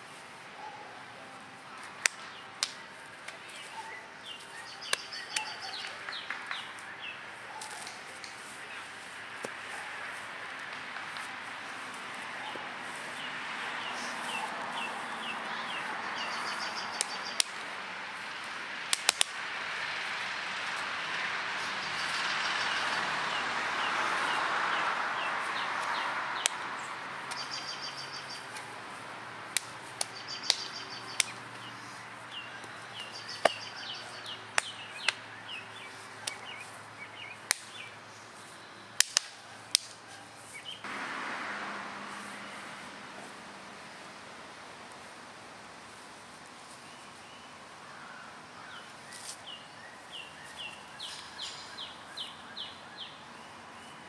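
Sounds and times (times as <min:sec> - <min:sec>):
sharp cracks: 0:02.0 - 0:03.4, 0:15.7 - 0:17.8, 0:18.4 - 0:19.6, 0:25.6 - 0:27.6, 0:29.5 - 0:31.4, 0:34.5 - 0:35.2, 0:37.4 - 0:37.9, 0:39.0 - 0:40.0
birds chirping and trilling: 0:03.4 - 0:08.9, 0:12.3 - 0:18.5, 0:21.6 - 0:28.7, 0:30.0 - 0:38.9, 0:46.7 - 0:54.0.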